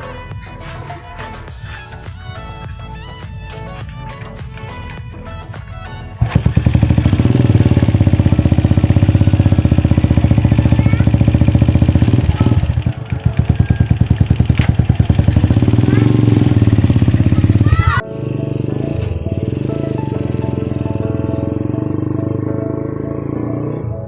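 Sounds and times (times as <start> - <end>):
vehicle engine running: 6.2 - 23.8.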